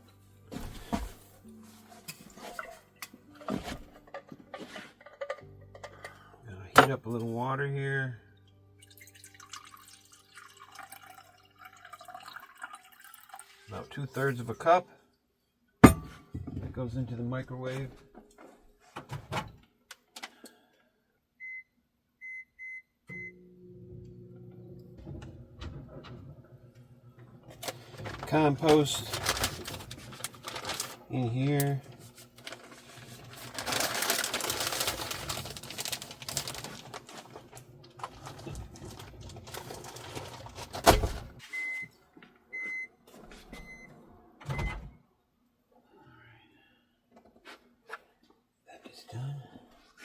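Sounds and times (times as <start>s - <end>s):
microwave oven beeping: 21.4s - 26.6s, 41.4s - 41.9s, 42.5s - 43.0s, 43.6s - 44.9s
microwave oven humming: 23.1s - 28.3s.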